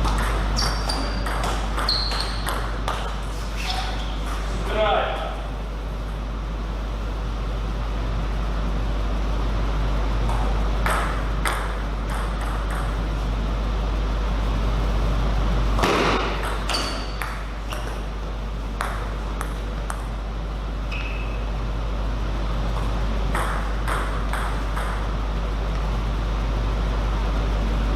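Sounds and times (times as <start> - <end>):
steady low hum: 0.0 - 27.9
table tennis ball clicking: 23.3 - 25.1.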